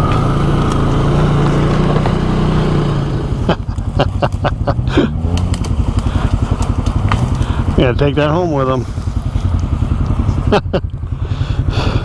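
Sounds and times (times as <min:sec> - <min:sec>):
atv engine under load: 0:00.0 - 0:12.0
knocks and clatters over rock: 0:01.4 - 0:02.2, 0:05.2 - 0:07.8.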